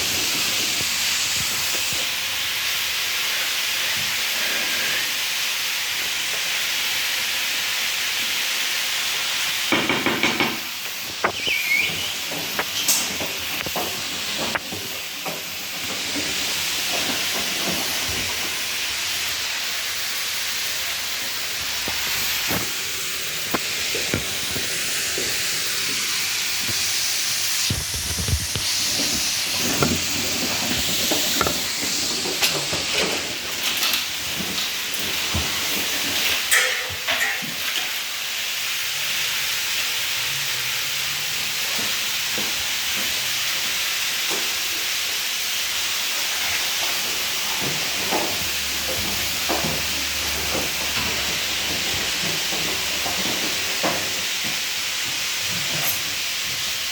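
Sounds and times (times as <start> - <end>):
washing machine water hiss: 0.0 - 56.9.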